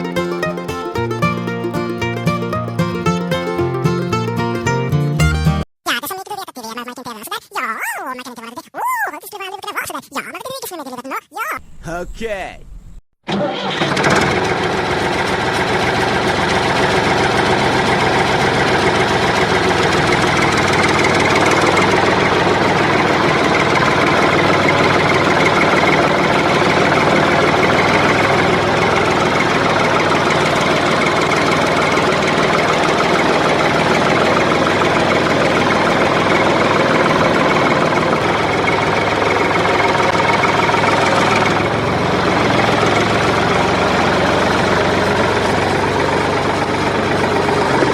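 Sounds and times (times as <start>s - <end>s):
engine idling: 13.6s - 47.9s.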